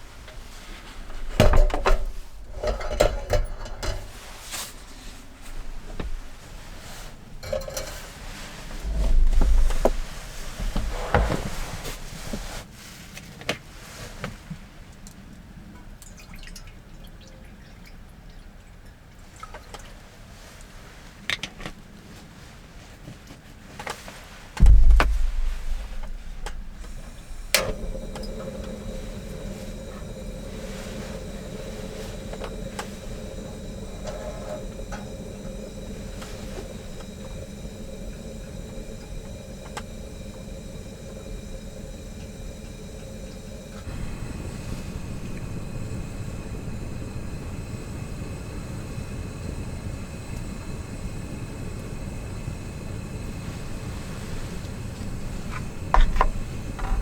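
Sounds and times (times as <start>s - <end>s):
deep rumbling: 8.3s - 12.5s, 24.6s - 52.2s
heavy low thump: 24.6s - 28.7s
car engine humming: 24.6s - 57.0s
click: 26.0s - 47.4s.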